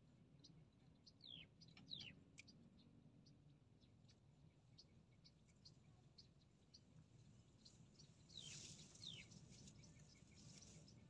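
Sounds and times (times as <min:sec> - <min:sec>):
bird chirps: 0:00.9 - 0:02.6.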